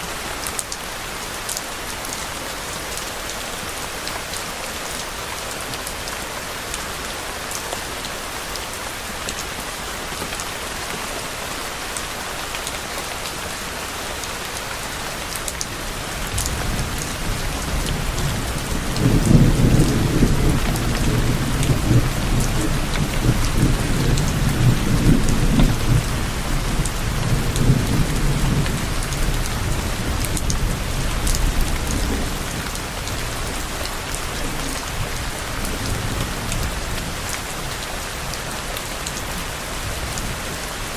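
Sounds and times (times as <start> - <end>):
rain pattering on surfaces: 0.0 - 40.9
distant thunder rumble: 16.3 - 33.3.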